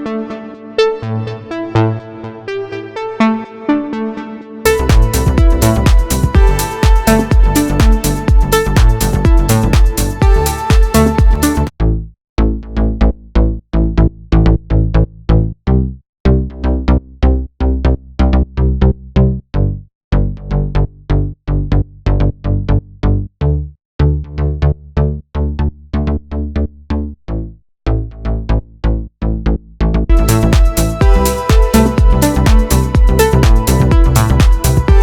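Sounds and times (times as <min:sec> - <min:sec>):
synth bass line: 0:00.0 - 0:19.0, 0:19.6 - 0:35.0.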